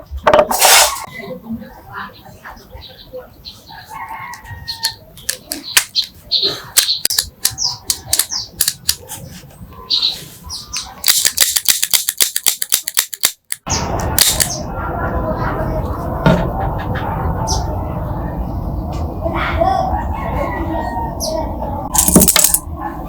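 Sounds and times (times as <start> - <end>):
steady noisy background: 4.1 - 23.0
gun mechanism clicks: 4.8 - 6.1, 6.8 - 9.0, 10.8 - 14.5, 22.0 - 22.6.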